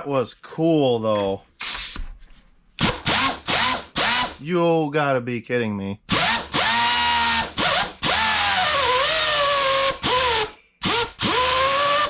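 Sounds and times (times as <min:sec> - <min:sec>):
angle grinder whining: 0:06.1 - 0:12.0.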